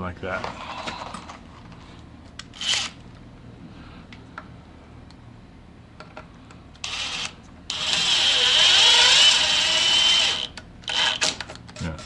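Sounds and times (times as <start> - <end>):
cordless drill motor whine: 6.8 - 11.3.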